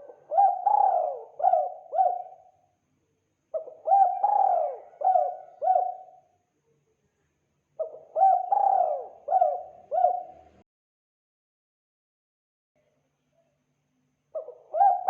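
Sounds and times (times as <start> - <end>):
dove cooing: 0.0 - 2.6, 3.5 - 6.3, 7.8 - 10.6, 14.4 - 15.0.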